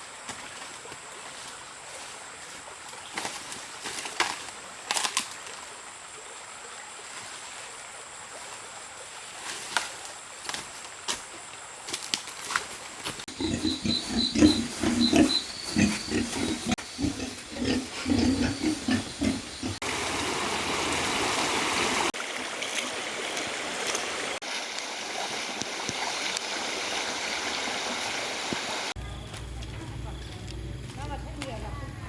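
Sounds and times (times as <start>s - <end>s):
animal grunting: 13.3s - 19.8s.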